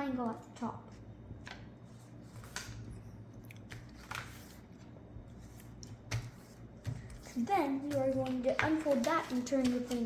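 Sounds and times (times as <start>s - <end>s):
paper being folded and creased: 1.4s - 3.0s, 3.7s - 7.5s, 8.2s - 10.0s.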